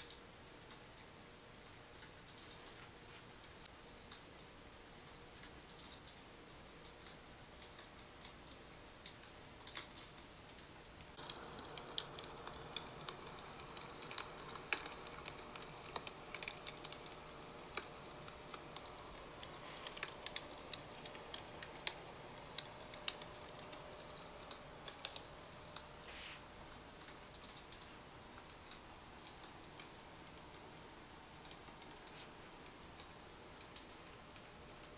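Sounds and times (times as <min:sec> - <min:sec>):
faint steady hiss: 0:00.0 - 0:34.9
small objects clicking: 0:10.6 - 0:25.9.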